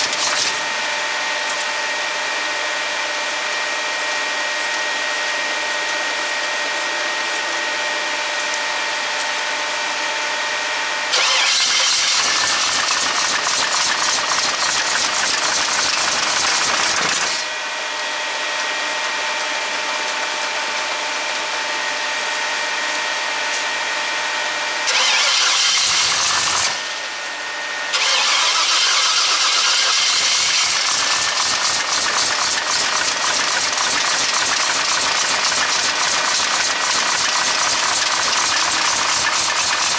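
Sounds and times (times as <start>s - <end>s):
engine cranking: 11.1s - 17.4s, 24.9s - 26.8s, 27.9s - 39.9s.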